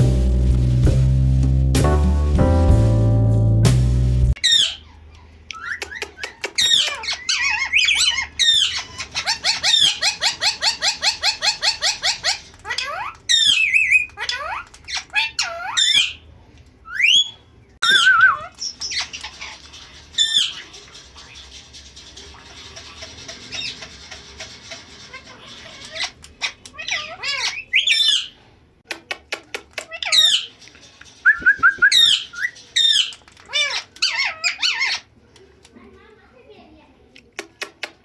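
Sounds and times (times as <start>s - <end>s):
parakeet squawking: 4.4s - 16.2s, 16.9s - 28.4s, 29.9s - 30.6s, 31.3s - 35.1s.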